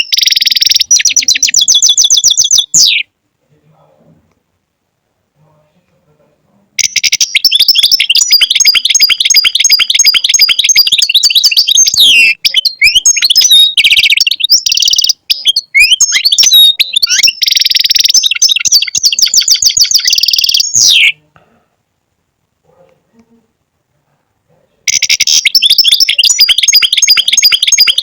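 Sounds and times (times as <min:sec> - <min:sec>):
goldfinch twittering song: 0:00.0 - 0:03.0, 0:06.8 - 0:21.1, 0:24.9 - 0:28.0.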